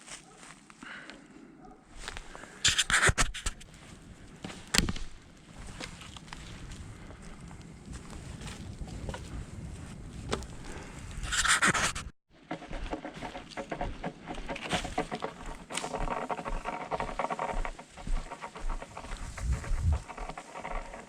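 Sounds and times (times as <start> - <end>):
campfire crackling: 3.6 - 11.2.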